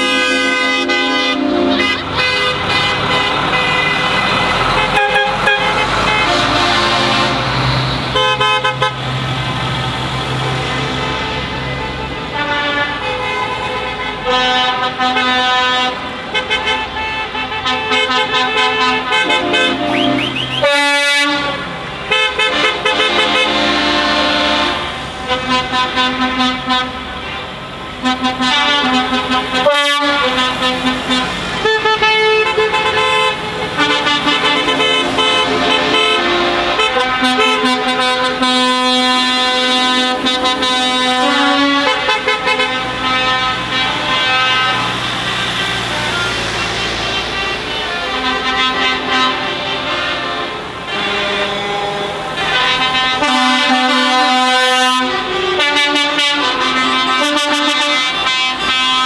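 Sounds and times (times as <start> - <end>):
truck horns sounding: 0.0 - 59.0
vehicle engines running: 0.0 - 59.0.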